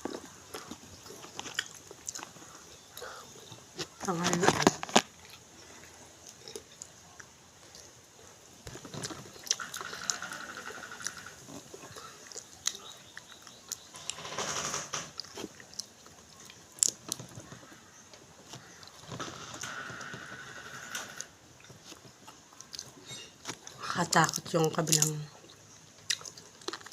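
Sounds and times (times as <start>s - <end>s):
chewing and mouth smacking: 0.0s - 7.9s, 11.5s - 13.9s, 15.2s - 17.7s, 21.6s - 26.9s.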